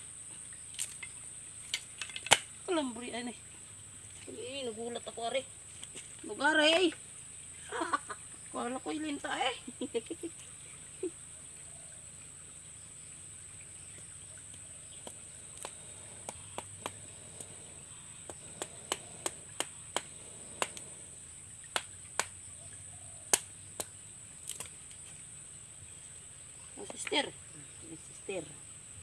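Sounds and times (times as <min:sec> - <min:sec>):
wood fire crackling and popping: 0:01.7 - 0:02.5, 0:15.0 - 0:21.1, 0:21.7 - 0:22.4, 0:23.3 - 0:24.8.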